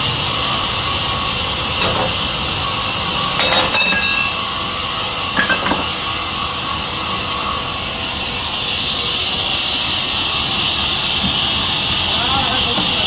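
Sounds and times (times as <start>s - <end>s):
sawmill machinery running: 0.0s - 13.0s
ringing metallic clinks: 1.8s - 2.2s, 3.3s - 4.6s, 5.4s - 6.0s.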